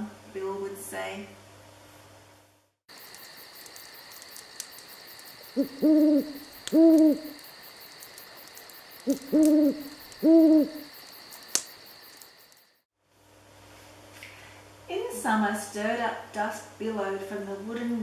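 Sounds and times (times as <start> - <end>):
night insects chirring: 2.9 - 12.9
owl hooting: 5.4 - 7.4, 9.0 - 11.0.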